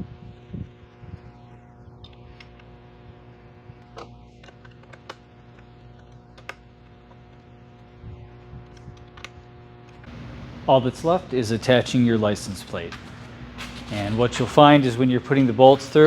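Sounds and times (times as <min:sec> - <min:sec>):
steady low hum: 0:10.0 - 0:16.0.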